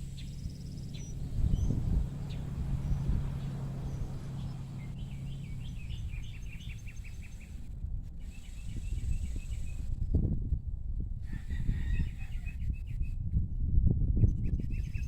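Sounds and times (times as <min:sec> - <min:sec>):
bird chirping: 0:00.0 - 0:09.8
low hum: 0:00.0 - 0:11.2
low rumble: 0:00.0 - 0:11.3.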